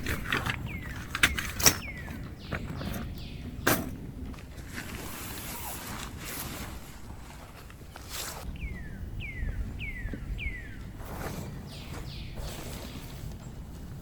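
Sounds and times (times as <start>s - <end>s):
gear clicks and knocks: 0.0s - 4.8s
rustling: 0.0s - 8.5s, 10.0s - 14.0s.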